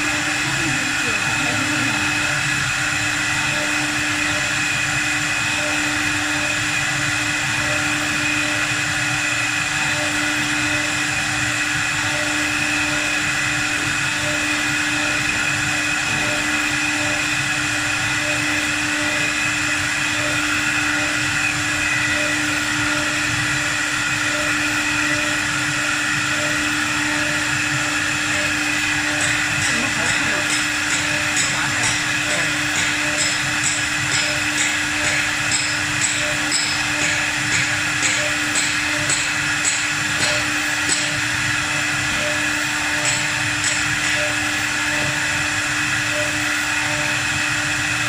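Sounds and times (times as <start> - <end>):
wood lathe motor whine: 0.0 - 48.0.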